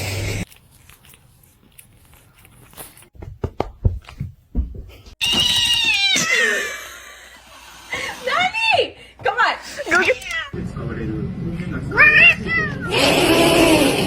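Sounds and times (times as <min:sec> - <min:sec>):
cat yowling: 0:05.4 - 0:06.5.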